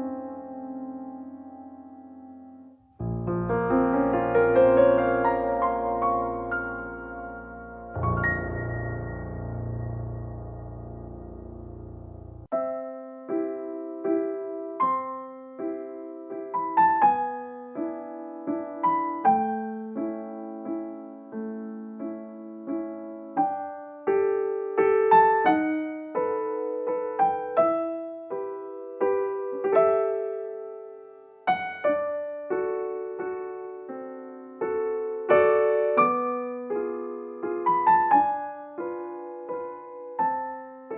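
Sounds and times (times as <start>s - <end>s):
gentle piano melody: 0.0s - 40.9s.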